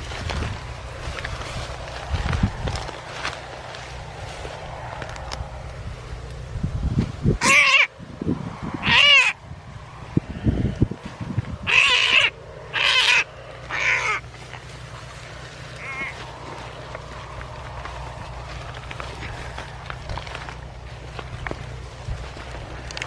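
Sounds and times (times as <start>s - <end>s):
harsh animal calls: 7.4s - 8.0s, 8.7s - 9.5s, 11.5s - 20.8s.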